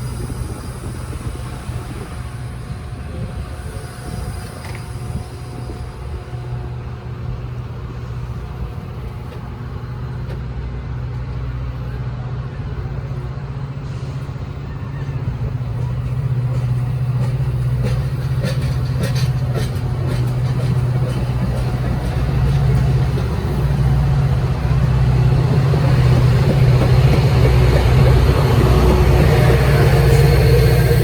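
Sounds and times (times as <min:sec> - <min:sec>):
diesel engine humming: 0:15.2 - 0:31.0.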